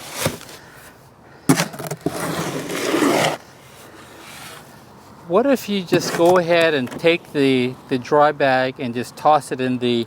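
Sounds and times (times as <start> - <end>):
tool scraping through wet concrete: 1.5 - 3.4, 5.9 - 7.0.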